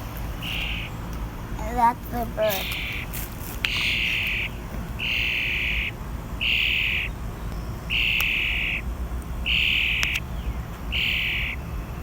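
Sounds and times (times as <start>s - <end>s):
bird giving harsh hissing calls: 0.4s - 0.9s, 1.8s - 7.1s, 7.9s - 8.8s.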